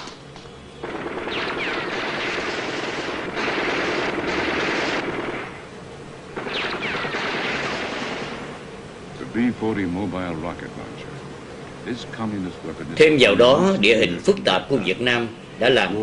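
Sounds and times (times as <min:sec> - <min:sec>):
rapid automatic gunfire: 0:00.8 - 0:05.6, 0:06.4 - 0:08.6.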